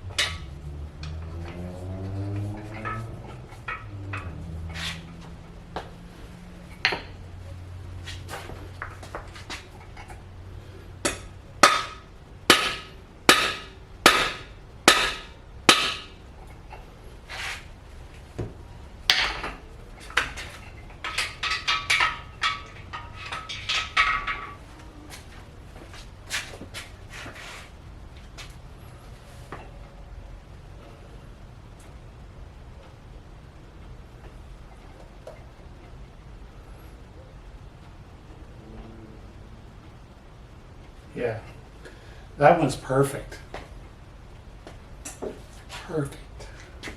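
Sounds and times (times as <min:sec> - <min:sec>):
hammer striking metal: 0:02.4 - 0:04.4, 0:11.0 - 0:16.2.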